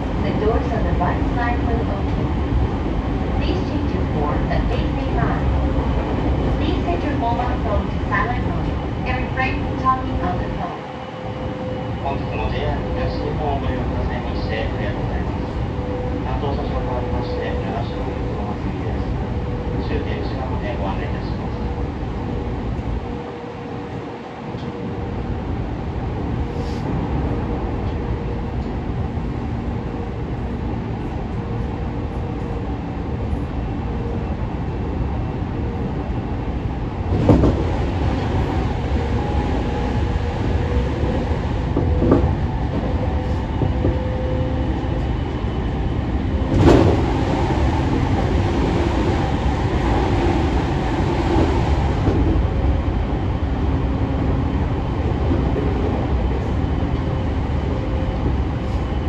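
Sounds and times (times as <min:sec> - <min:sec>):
train wheels rumbling on rail: 0:00.0 - 0:59.0
loud train clatters: 0:46.0 - 0:59.0.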